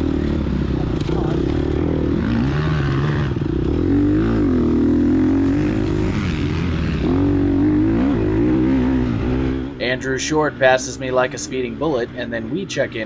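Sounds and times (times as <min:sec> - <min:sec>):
dirt bike engine revving: 0:00.0 - 0:11.9.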